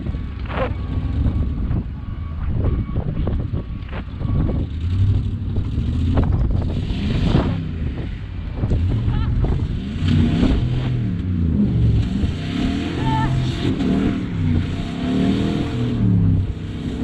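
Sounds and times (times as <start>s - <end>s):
wind noise on microphone: 0.0s - 12.7s
car engine and road noise: 0.0s - 17.0s.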